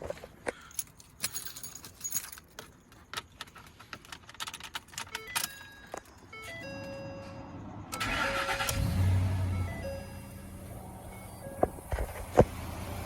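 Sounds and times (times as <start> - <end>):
keys jangling: 0.5 - 6.6.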